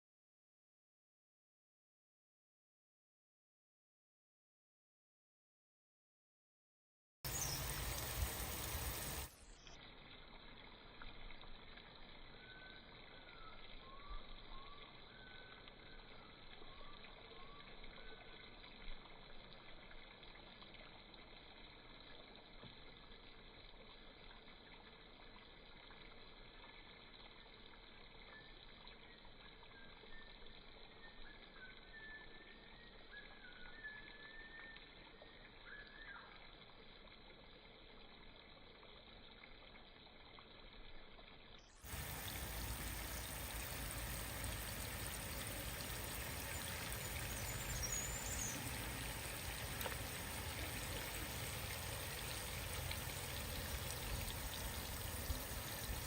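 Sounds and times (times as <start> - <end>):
faint chirps: 7.3 - 9.8, 12.3 - 18.5, 45.0 - 51.3
water pouring and running: 7.3 - 56.0.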